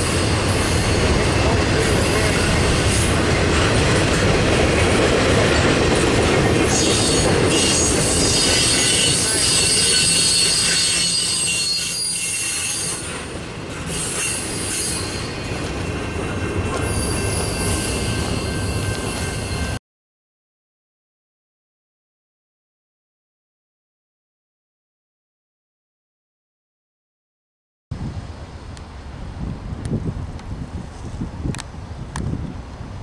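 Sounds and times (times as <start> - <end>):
train wheels rumbling on rail: 0.0 - 19.8, 28.1 - 33.0
high-pitched wheel squeal: 6.7 - 13.3, 13.9 - 15.6, 16.8 - 19.8.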